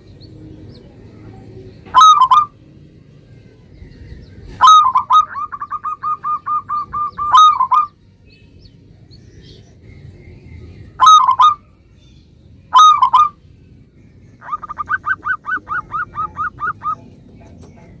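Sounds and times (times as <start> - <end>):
dove cooing: 1.2 - 2.6, 4.4 - 7.9, 11.0 - 11.7, 12.7 - 13.4, 14.4 - 18.0
harsh dove notes: 1.9 - 2.6, 4.6 - 7.9, 11.0 - 11.7, 12.7 - 13.4, 14.4 - 17.0.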